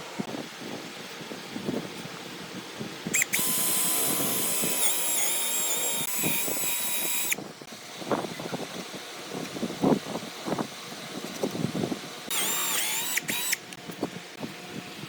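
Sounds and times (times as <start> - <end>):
power drill motor whining: 3.2 - 7.4, 12.3 - 13.8.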